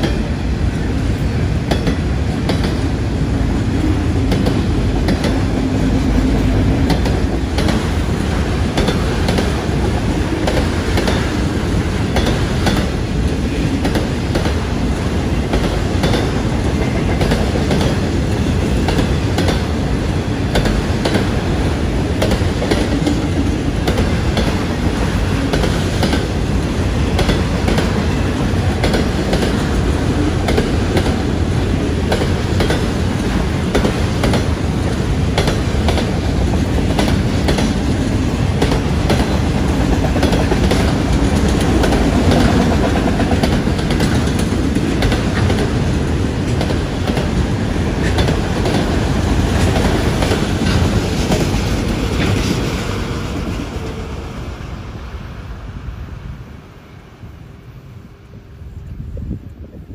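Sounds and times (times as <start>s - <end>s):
freight train rumbling: 0.0s - 59.9s
wheels clicking over rail joints: 6.3s - 54.0s.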